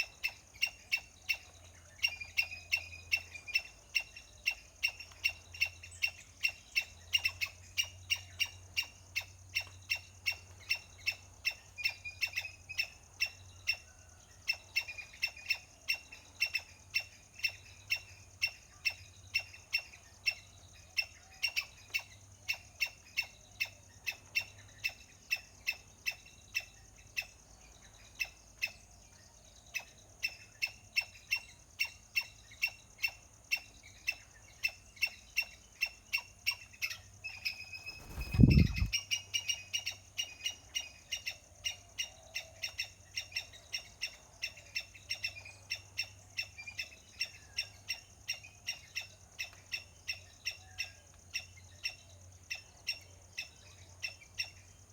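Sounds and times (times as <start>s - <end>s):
small animal chirping: 37.6s - 39.0s.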